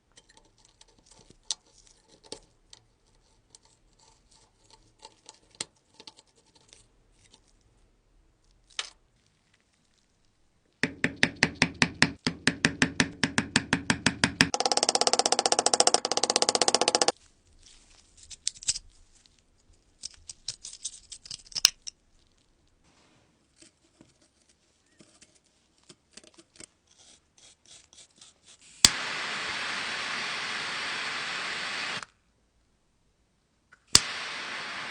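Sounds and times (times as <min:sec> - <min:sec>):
steady hiss: 0:28.7 - 0:32.1, 0:33.9 - 0:34.9.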